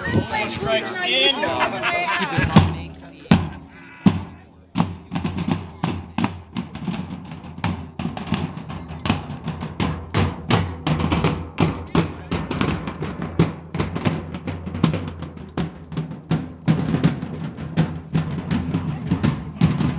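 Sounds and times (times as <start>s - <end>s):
drum group playing fast rhythm: 0.0s - 19.9s.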